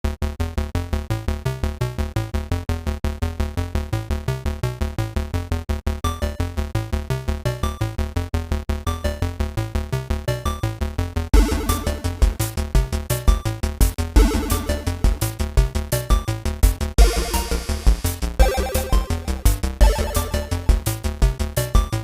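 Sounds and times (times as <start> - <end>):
electronic synthesizer music: 11.4 - 12.6, 14.2 - 15.4, 17.0 - 20.8.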